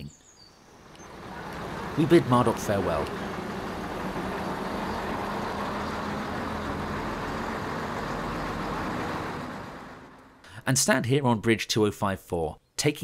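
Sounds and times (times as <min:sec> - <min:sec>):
train running on track: 0:00.9 - 0:10.4.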